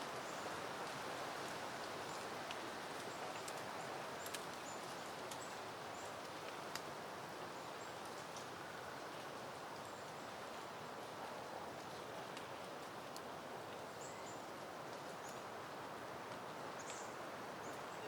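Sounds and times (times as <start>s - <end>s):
wind rustling leafy plants: 0.0s - 18.0s
light ticks: 2.1s - 5.6s, 6.2s - 6.9s, 8.0s - 8.5s.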